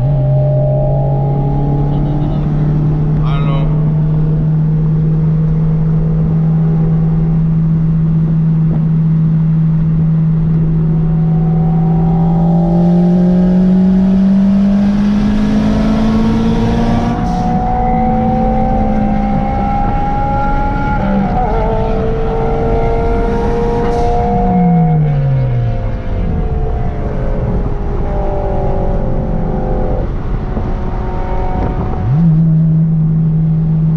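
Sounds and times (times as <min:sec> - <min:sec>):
car engine running: 0:00.0 - 0:16.6.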